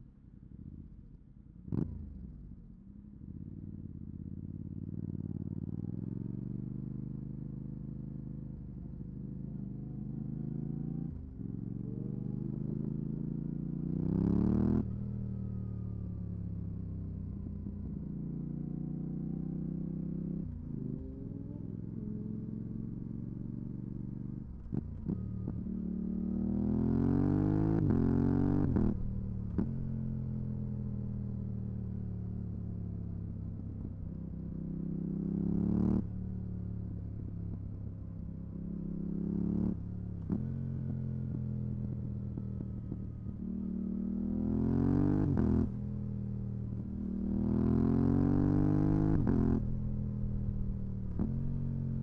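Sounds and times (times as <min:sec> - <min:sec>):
motorcycle engine revving: 0:09.8 - 0:52.0.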